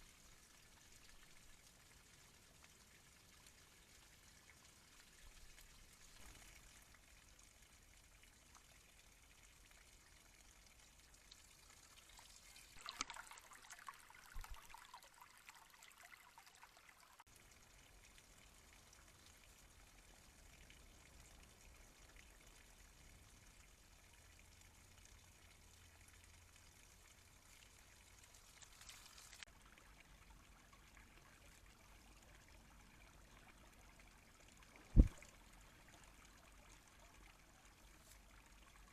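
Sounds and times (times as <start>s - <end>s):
rustling: 28.2s - 29.5s
faint microphone hiss: 30.2s - 38.9s.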